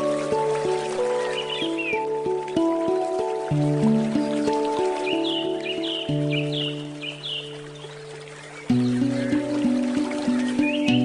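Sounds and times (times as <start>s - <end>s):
faint flowing stream: 0.0s - 11.0s
handpan ringing notes: 0.0s - 11.0s
bird chirps: 1.2s - 2.1s, 4.3s - 9.5s.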